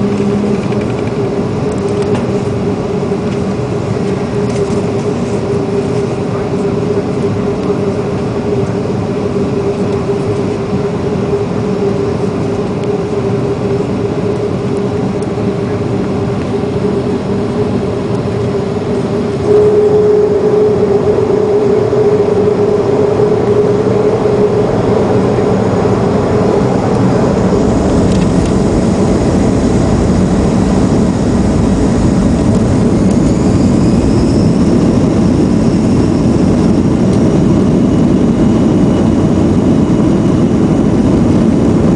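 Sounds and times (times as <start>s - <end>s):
deep jet engine rumble: 0.0s - 41.9s
jet engines humming: 0.0s - 41.9s.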